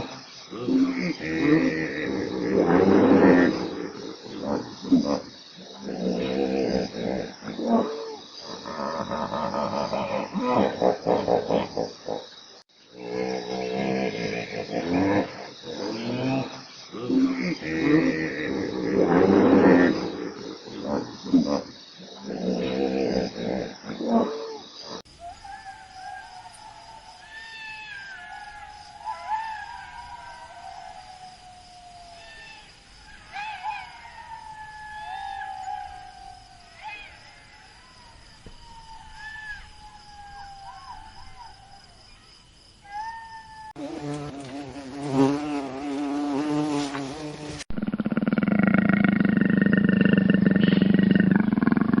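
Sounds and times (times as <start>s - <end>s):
wild animal calls: 0.0s - 12.4s, 13.0s - 42.1s, 47.8s - 52.0s
wavering animal call: 24.2s - 37.3s, 38.8s - 41.8s, 42.8s - 44.5s
loud pulsing insect buzz: 43.8s - 52.0s.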